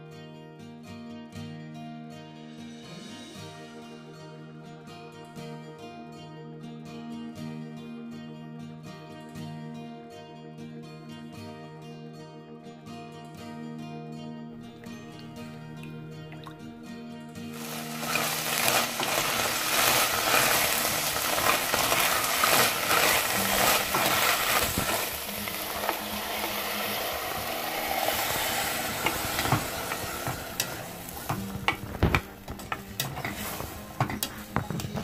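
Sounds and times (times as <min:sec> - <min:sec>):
peas sizzling in oil: 0:17.4 - 0:35.0
plastic spoon scraping a pot: 0:17.7 - 0:26.6, 0:27.4 - 0:35.0.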